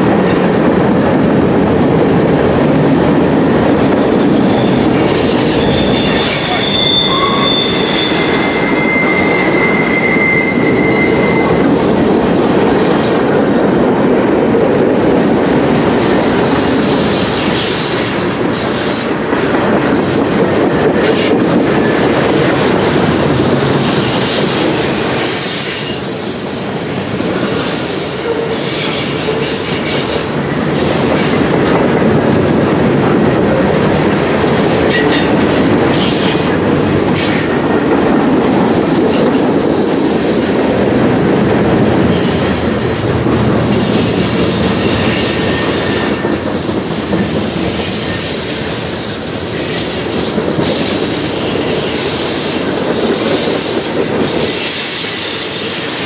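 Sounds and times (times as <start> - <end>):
steel wheels rumbling on rail: 0.0 - 56.0
thin wheel squeal: 5.3 - 11.7.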